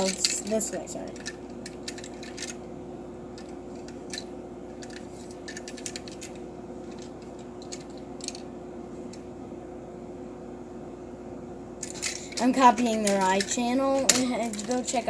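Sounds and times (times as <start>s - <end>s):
electrical hum: 0.0s - 15.0s
small objects clicking and tapping: 3.4s - 8.4s, 11.8s - 15.0s.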